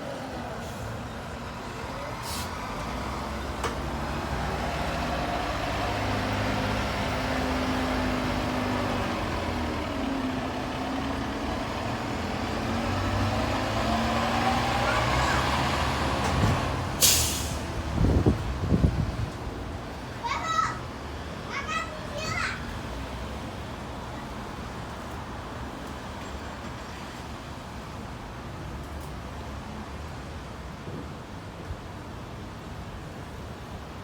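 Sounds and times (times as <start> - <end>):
diesel engine revving: 2.2 - 19.3
sharp hiss of air: 17.0 - 17.8.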